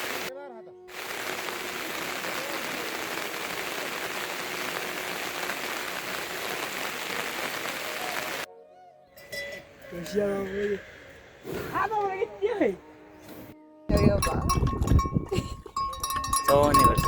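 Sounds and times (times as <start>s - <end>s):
heavy rain hissing: 0.0s - 0.3s, 0.9s - 8.5s.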